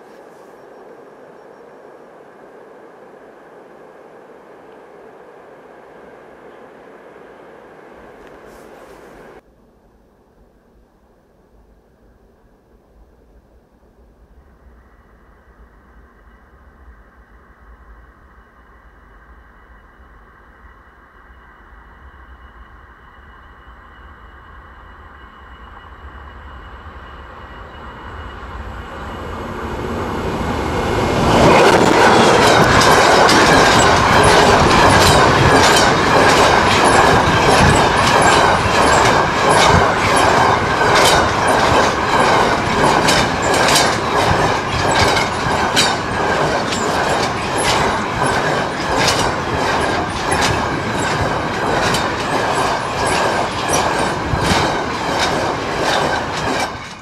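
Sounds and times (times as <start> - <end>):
train rumble: 0.0 - 9.5, 12.6 - 57.0
wheels clicking over rail joints: 31.1 - 57.0.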